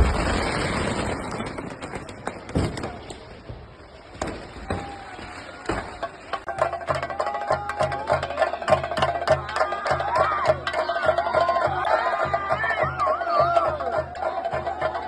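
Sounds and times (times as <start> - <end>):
firecrackers going off: 0.0 - 6.6
faint voices: 1.2 - 15.0.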